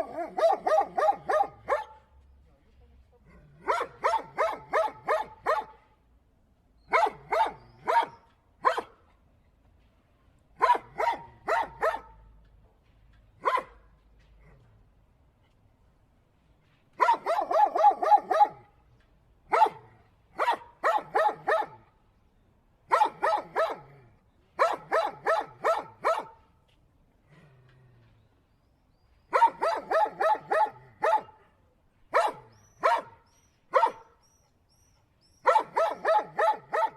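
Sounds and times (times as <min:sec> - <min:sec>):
dog barking: 0:00.0 - 0:02.1, 0:03.6 - 0:05.8, 0:06.9 - 0:09.0, 0:10.6 - 0:12.2, 0:13.4 - 0:13.9, 0:17.0 - 0:18.7, 0:19.5 - 0:21.8, 0:22.9 - 0:23.9, 0:24.6 - 0:26.4, 0:29.3 - 0:34.2, 0:35.4 - 0:36.9.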